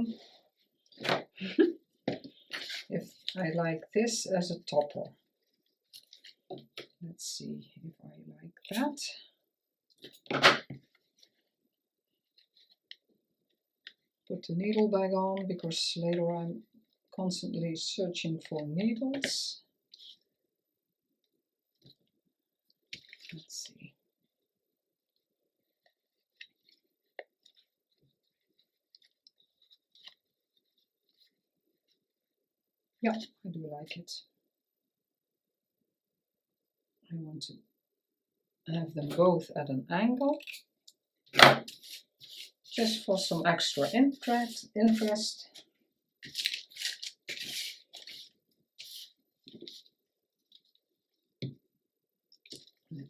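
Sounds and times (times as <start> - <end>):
paper rustling: 41.4 - 45.2, 46.2 - 50.8
paper pieces clicking and rustling: 46.2 - 49.1.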